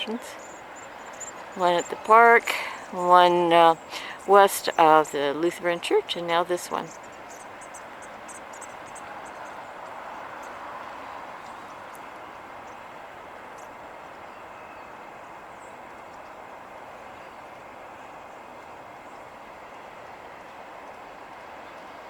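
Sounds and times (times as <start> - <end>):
traffic noise: 0.0 - 22.0
vehicle passing: 0.2 - 14.2.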